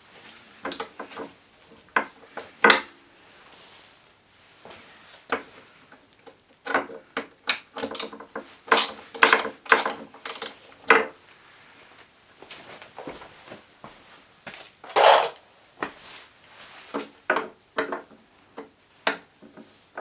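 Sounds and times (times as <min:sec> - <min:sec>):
metal tools clinking: 0:14.9 - 0:15.4.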